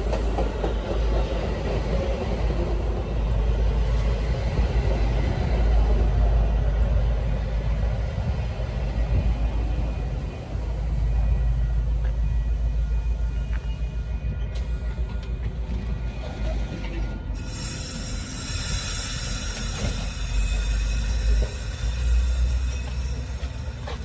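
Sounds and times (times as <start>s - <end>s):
train rumbling low: 0.0s - 24.0s.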